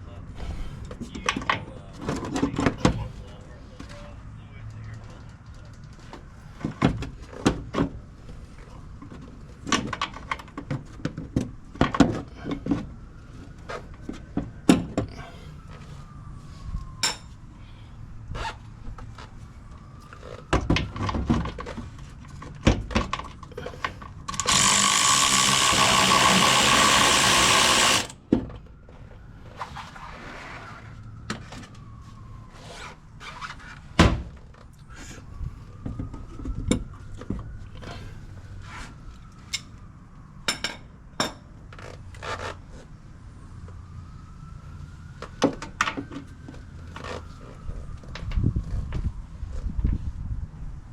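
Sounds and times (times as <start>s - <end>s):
power tool running: 24.3s - 28.2s.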